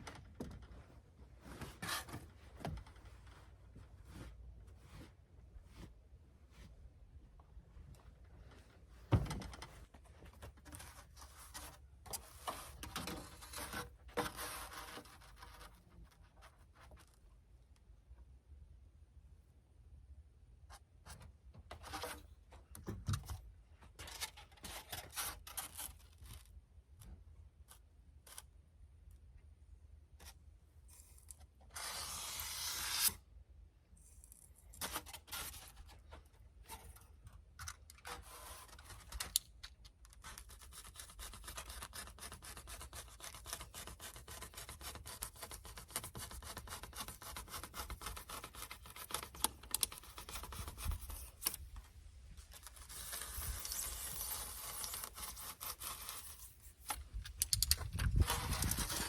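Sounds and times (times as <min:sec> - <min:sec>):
materials rubbed and scraped by hand: 0:09.6 - 0:17.2, 0:30.2 - 0:33.3, 0:40.2 - 0:59.0.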